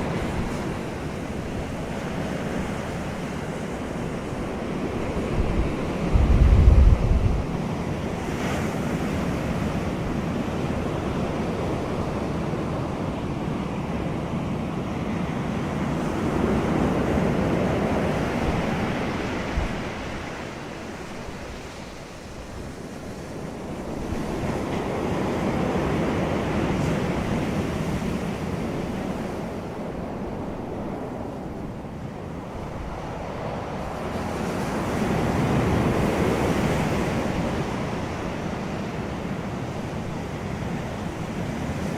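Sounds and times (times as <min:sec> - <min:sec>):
wind buffeting microphone: 0:00.0 - 0:13.6, 0:15.8 - 0:22.8
surf rushing: 0:00.0 - 0:41.9.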